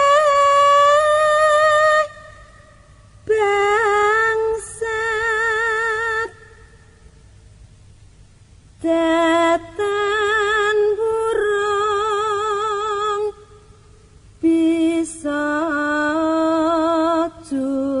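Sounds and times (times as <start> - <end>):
woman singing with vibrato: 0.0 - 7.1, 8.8 - 13.8, 14.4 - 18.0.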